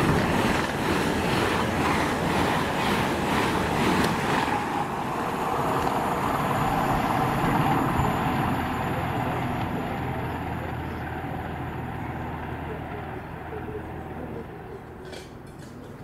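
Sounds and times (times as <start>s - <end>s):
train rumbling roar: 0.0s - 15.5s.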